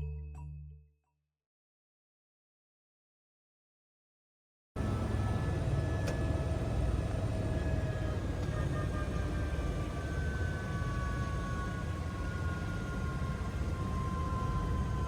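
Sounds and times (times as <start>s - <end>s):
helicopter running: 4.8s - 15.0s.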